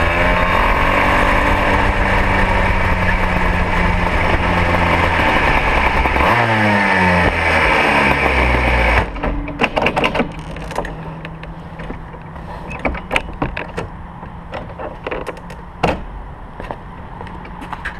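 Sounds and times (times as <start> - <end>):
kart engine revs falling to idle: 0.0 - 10.4
sharp clicks and knocks: 7.2 - 17.9.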